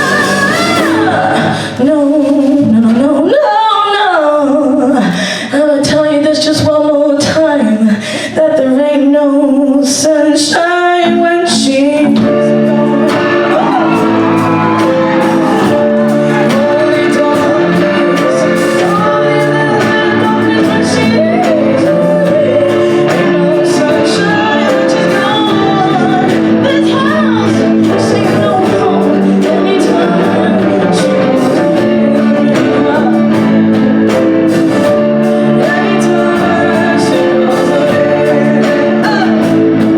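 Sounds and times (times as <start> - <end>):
live band playing soul music: 0.0 - 2.8, 11.0 - 39.9
person singing: 0.0 - 39.9.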